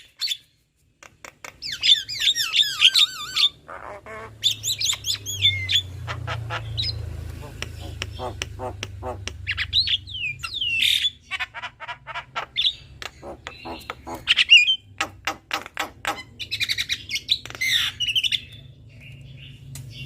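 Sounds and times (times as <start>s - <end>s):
mynas clicking calls: 1.0s - 18.6s
harsh squawks: 1.8s - 14.9s.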